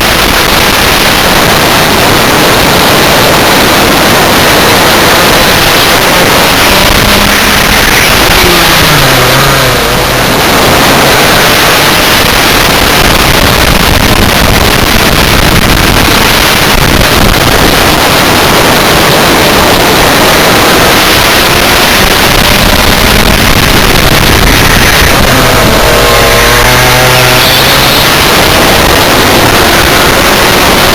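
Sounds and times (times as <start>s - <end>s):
two-stroke kart engine: 0.0s - 30.9s
wind noise on microphone: 0.0s - 30.9s.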